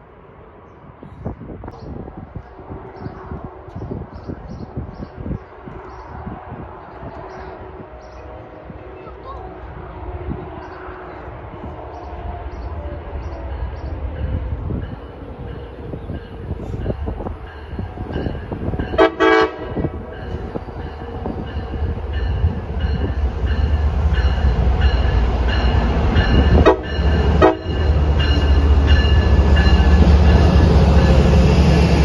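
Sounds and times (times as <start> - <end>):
train rumble: 0.0 - 32.0
train horn blast: 18.7 - 21.0, 26.3 - 31.2.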